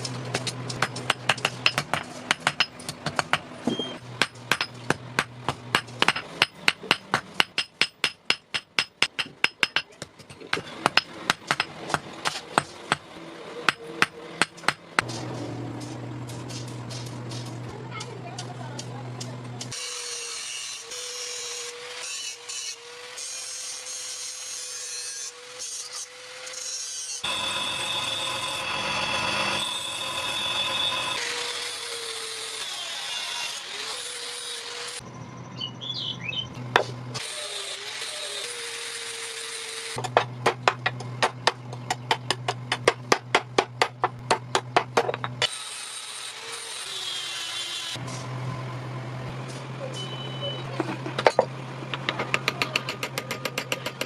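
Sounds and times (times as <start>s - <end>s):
steel grinding rasp: 19.7s - 35.0s.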